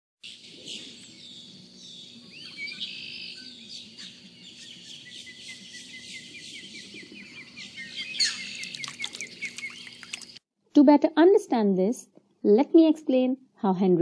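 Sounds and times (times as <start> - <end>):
birds chirping and trilling: 0.2 - 10.4
faint low hum: 0.4 - 14.0.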